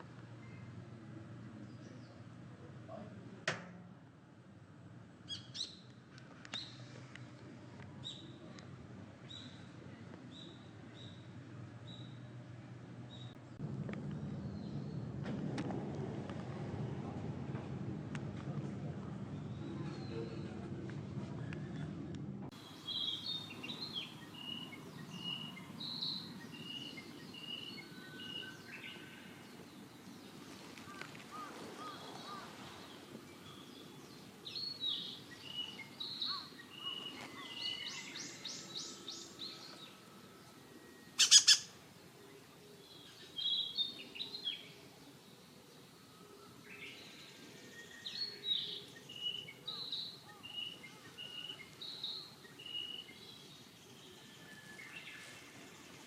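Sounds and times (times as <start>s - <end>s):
small birds chirping: 22.6s - 56.0s.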